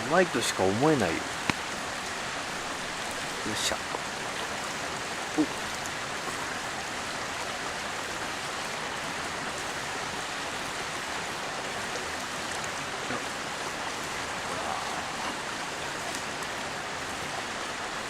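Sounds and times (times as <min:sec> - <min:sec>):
river flowing: 0:00.0 - 0:18.0.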